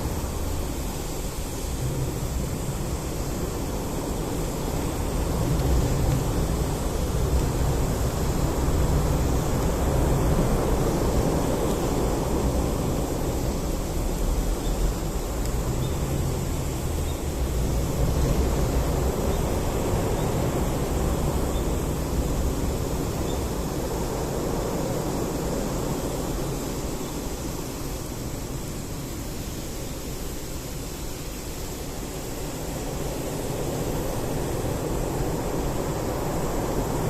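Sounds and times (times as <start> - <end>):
bonfire rumbling: 0.1 - 24.5.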